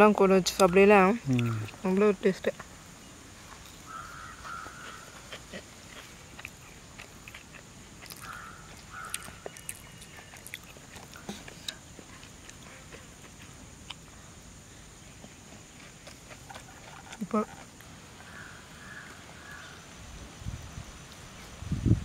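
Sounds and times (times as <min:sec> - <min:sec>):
person chewing crisp food: 0:01.3 - 0:01.8, 0:03.5 - 0:18.4
bird calling: 0:03.8 - 0:05.7, 0:08.2 - 0:11.7, 0:18.2 - 0:19.9.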